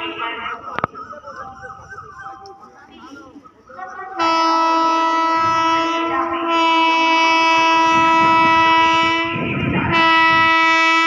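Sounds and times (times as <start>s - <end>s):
train rumbling on track: 2.4s - 11.0s
locomotive air horn blasts: 4.2s - 11.0s.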